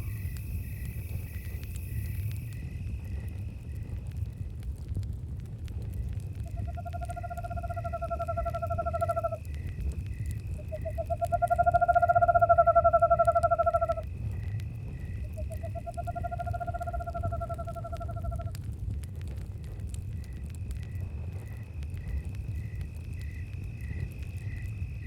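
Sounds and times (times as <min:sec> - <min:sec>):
crickets chirping: 0:00.0 - 0:04.6, 0:05.7 - 0:18.6, 0:19.6 - 0:25.0
campfire crackling: 0:00.0 - 0:25.0
owl trilled hoots: 0:06.4 - 0:09.4, 0:10.6 - 0:14.1.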